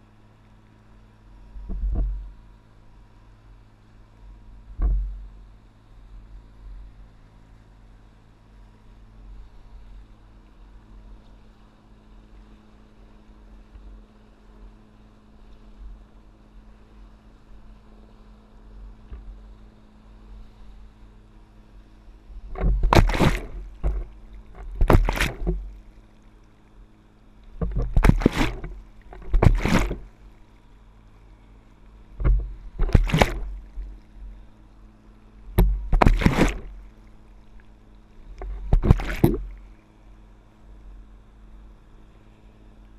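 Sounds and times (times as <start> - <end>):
low steady hum: 0.0 - 42.9
water splashing: 22.4 - 26.0, 27.5 - 30.5, 32.0 - 34.5, 35.5 - 37.7, 38.3 - 39.8.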